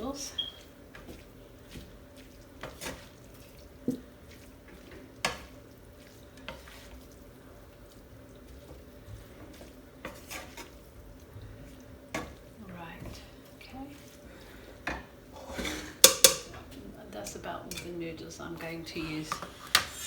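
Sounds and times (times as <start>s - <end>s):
utensil scraping and knocking pan: 14.9s - 18.0s, 18.9s - 20.0s.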